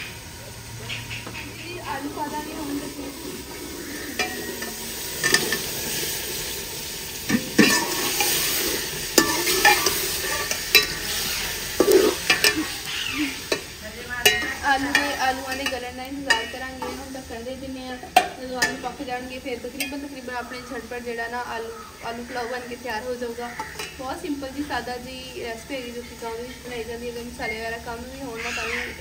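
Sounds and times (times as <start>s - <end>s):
potatoes sizzling in a pot: 0.0s - 29.0s
metal ladle scraping a pot: 2.6s - 6.5s, 7.2s - 17.1s, 23.6s - 24.0s.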